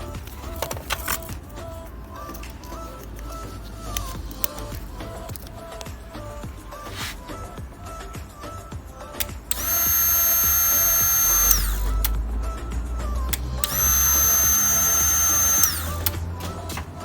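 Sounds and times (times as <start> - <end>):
cordless drill whining: 8.0 - 12.2, 13.1 - 16.6.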